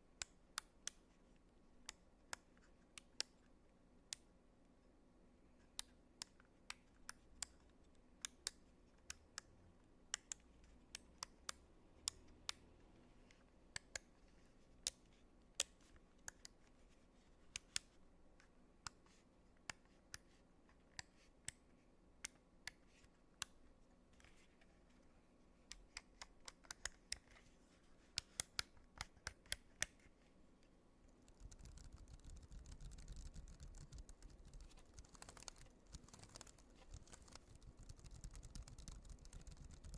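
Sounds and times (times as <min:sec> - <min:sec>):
soft scratchy noise: 0:31.0 - 0:39.9.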